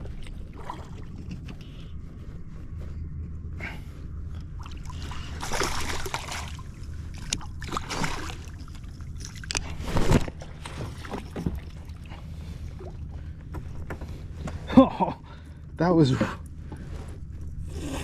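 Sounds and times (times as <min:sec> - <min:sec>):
fish thrashing water surface: 0:04.7 - 0:10.4.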